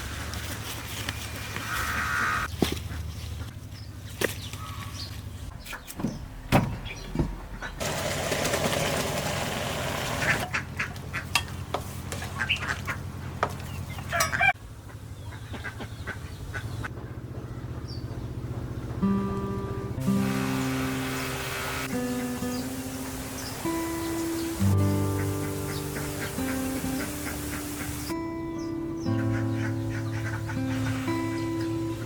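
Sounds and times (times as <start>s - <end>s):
ducks quacking: 1.6s - 3.6s, 10.2s - 16.9s, 20.2s - 28.2s, 29.0s - 32.0s
rushing hiss: 20.0s - 28.1s.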